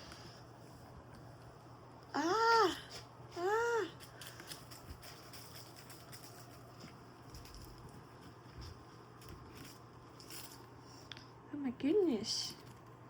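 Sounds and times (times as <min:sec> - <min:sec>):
low steady hum: 0:00.0 - 0:13.0
kittens tapping and rustling: 0:02.9 - 0:11.3.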